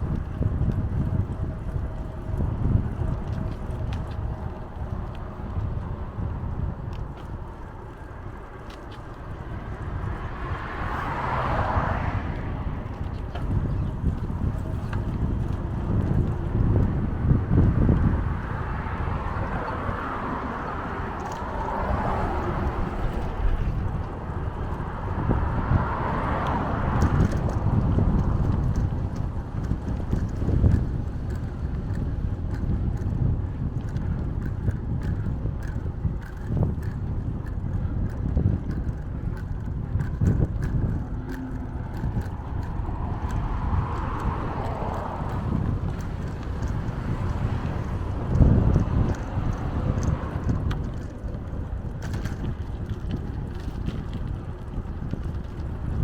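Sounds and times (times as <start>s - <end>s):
bicycle ride rushing noise: 0.0s - 56.0s
wind buffeting microphone: 0.0s - 56.0s
light clicks and rattles: 26.4s - 56.0s.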